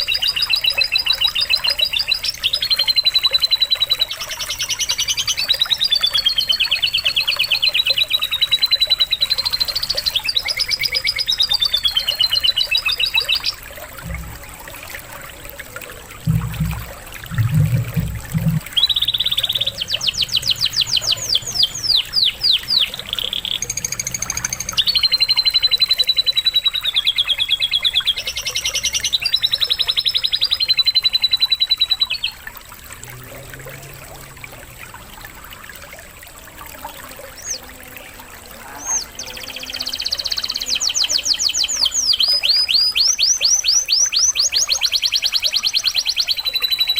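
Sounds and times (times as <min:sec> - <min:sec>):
canary singing trills: 0:00.0 - 0:14.4, 0:16.3 - 0:32.4, 0:38.6 - 0:46.9
trickle of running water: 0:00.0 - 0:46.9
low thumps: 0:14.0 - 0:14.8, 0:16.2 - 0:18.8.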